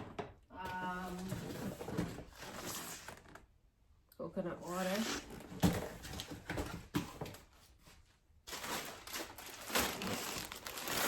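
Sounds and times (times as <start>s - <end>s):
packaging rustling: 8.5s - 11.0s.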